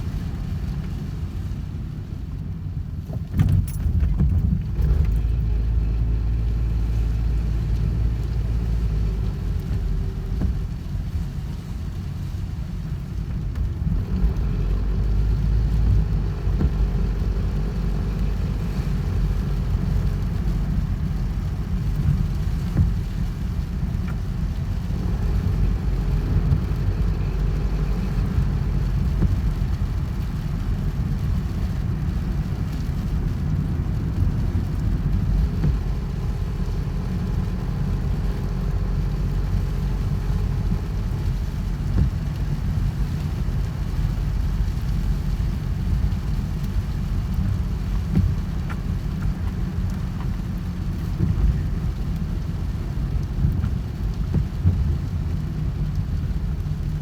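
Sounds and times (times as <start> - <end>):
low rumble: 0.0 - 57.0
steady rain hiss: 0.0 - 57.0.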